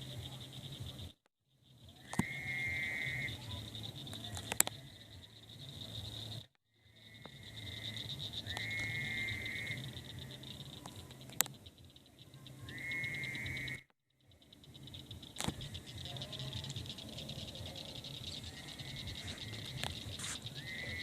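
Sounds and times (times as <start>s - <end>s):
frogs trilling: 0.0s - 21.0s
pulsing frog chorus: 0.0s - 21.0s
sharp clicks: 4.0s - 5.0s, 10.2s - 12.0s, 14.9s - 20.5s.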